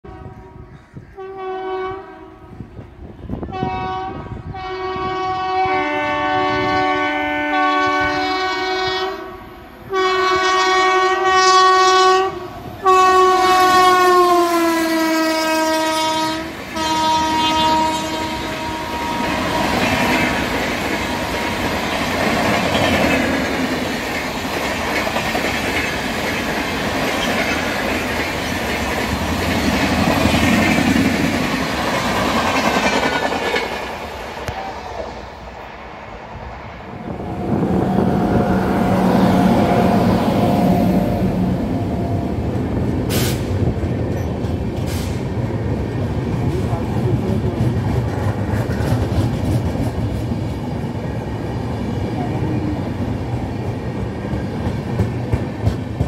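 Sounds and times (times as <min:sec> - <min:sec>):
locomotive horn blasts: 0:00.0 - 0:02.7, 0:03.4 - 0:20.1, 0:37.0 - 0:42.1
train wheels clacking on rails: 0:16.6 - 0:34.7, 0:42.4 - 0:51.0, 0:52.5 - 0:56.0.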